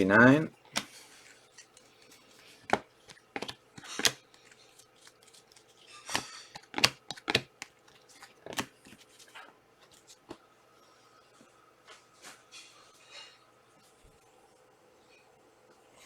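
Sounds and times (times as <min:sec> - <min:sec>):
trading cards sliding and snapping: 0:00.6 - 0:10.4.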